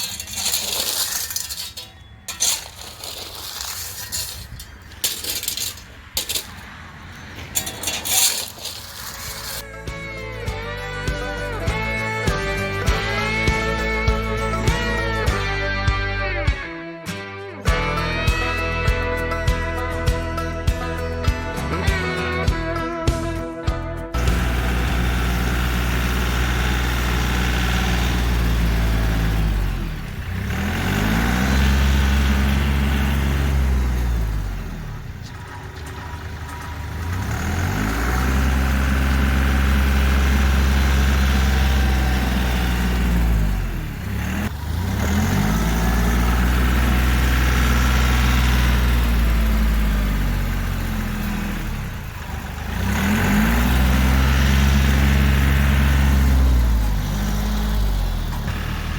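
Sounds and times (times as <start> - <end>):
tractor diesel engine revving: 24.2 - 58.9.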